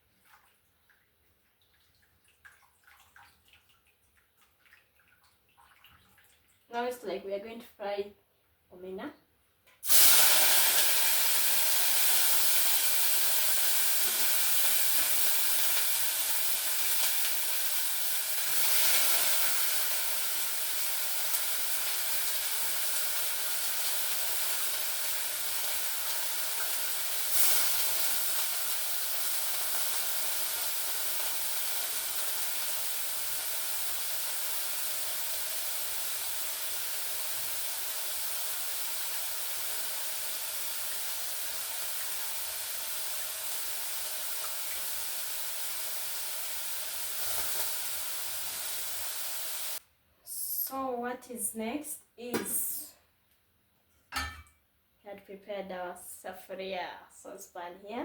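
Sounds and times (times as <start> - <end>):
fish sizzling in a hot pan: 9.8 - 49.8.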